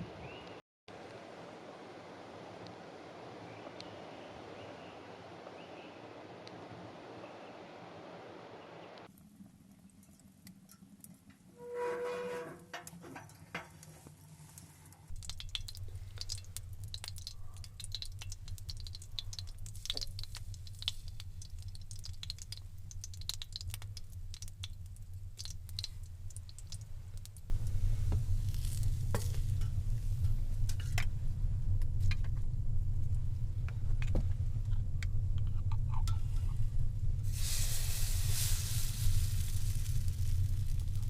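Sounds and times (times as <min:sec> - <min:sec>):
low rumble: 0:15.1 - 0:41.0
food sizzling in a pan: 0:37.3 - 0:41.0.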